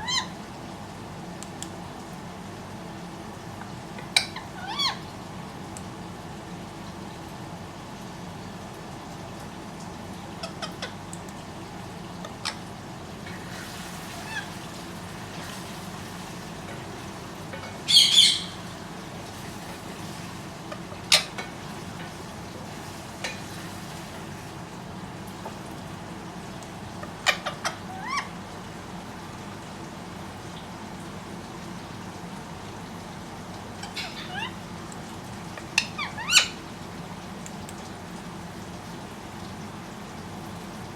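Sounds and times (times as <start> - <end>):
parrot squawking: 0.0 - 0.4, 4.1 - 5.0, 10.4 - 11.0, 14.2 - 14.6, 17.8 - 18.7, 27.0 - 28.4, 33.8 - 34.6, 35.6 - 36.6
parrot clicking calls: 4.0 - 5.0, 33.8 - 34.6, 35.6 - 36.6.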